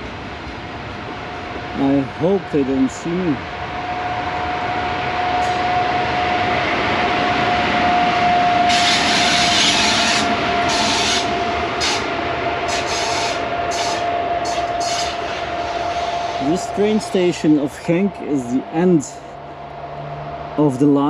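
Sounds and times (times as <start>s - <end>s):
steady whining tone: 0.0s - 21.0s
train rolling on rails: 0.0s - 21.0s.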